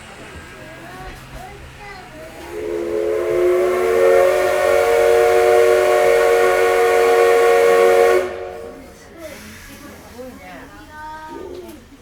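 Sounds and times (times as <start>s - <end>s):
steam locomotive whistle: 2.3s - 9.8s.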